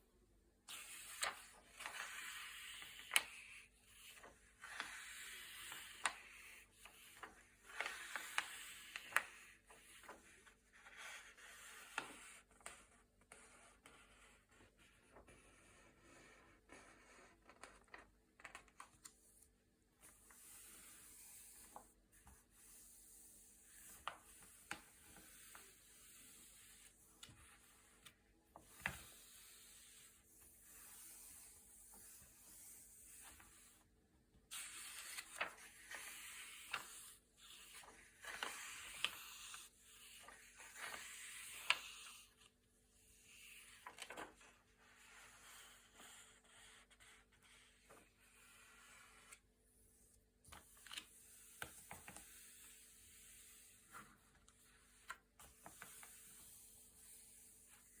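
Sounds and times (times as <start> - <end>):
glossy paper pages rustling: 0.7 - 10.2, 34.5 - 42.3, 43.4 - 44.5, 50.5 - 58.0.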